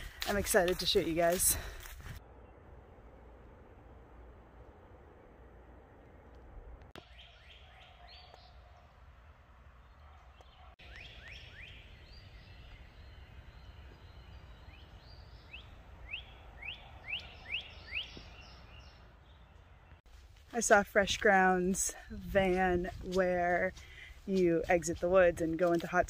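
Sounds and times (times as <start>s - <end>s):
faint low background rumble: 1.8s - 7.0s
songbird singing whistles: 10.8s - 19.0s.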